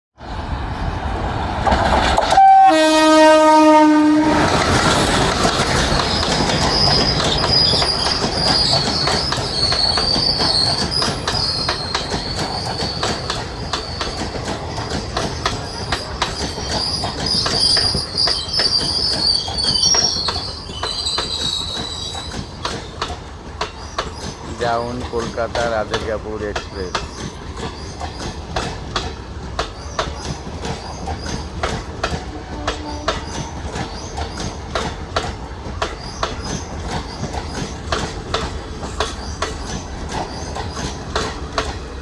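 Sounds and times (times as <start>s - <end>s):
train wheels clattering: 1.6s - 42.0s
train horn blast: 2.3s - 4.6s, 32.3s - 33.5s
wheel squeal: 5.8s - 14.3s, 15.4s - 23.0s.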